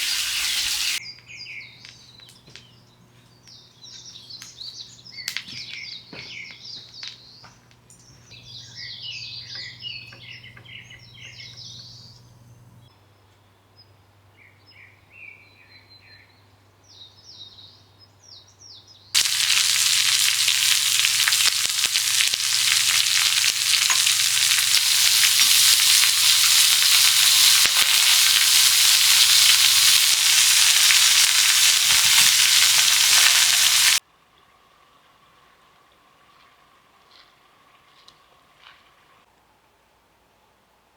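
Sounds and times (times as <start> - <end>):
food frying sizzling: 0.0 - 1.0, 19.2 - 34.0
small birds chirping: 0.0 - 34.0.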